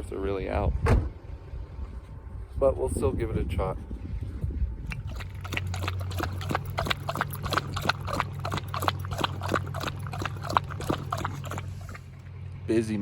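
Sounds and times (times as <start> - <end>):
vehicle engine hum: 4.5 - 13.0.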